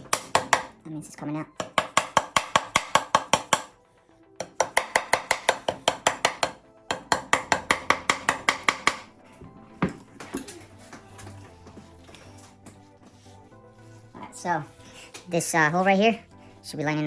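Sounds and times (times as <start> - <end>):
hammer tapping on metal: 0.0 - 0.8, 1.6 - 3.8, 4.4 - 9.1.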